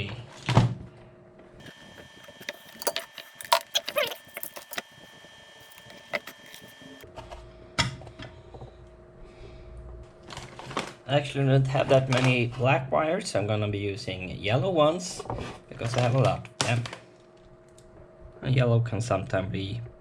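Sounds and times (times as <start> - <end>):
clicks and metallic rattles of tools: 1.6 - 7.0.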